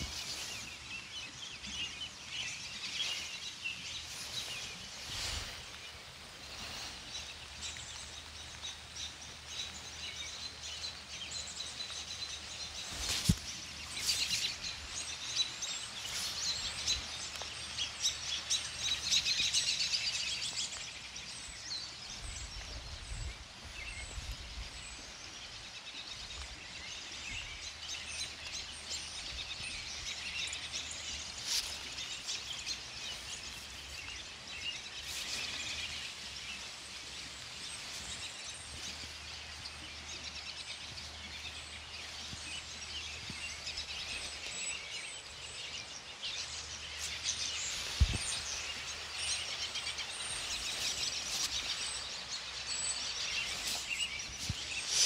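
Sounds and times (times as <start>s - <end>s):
outdoor background noise: 0.0s - 55.0s
small birds chirping: 0.0s - 55.0s.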